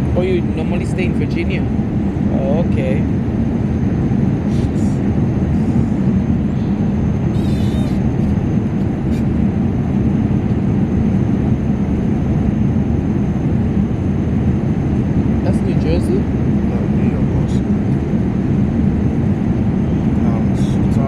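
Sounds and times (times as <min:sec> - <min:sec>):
airliner cabin drone: 0:00.0 - 0:21.0.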